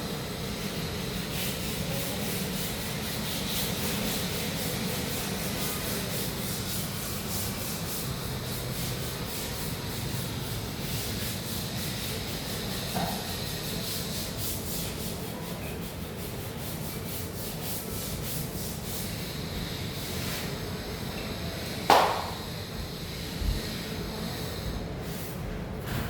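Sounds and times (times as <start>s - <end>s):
rubbing on a surface: 1.1s - 20.5s.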